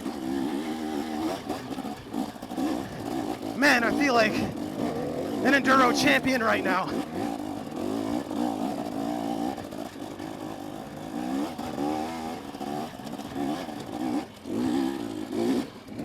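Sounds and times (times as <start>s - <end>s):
dirt bike engine revving: 0.6s - 6.2s, 6.9s - 8.3s.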